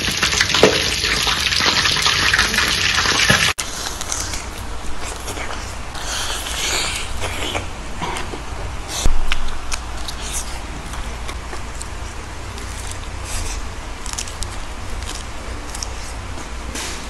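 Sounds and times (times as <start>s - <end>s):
crisp lettuce crunching: 0.1s - 7.6s, 8.2s - 17.0s
low hum: 3.6s - 16.8s
chewing: 3.6s - 16.9s.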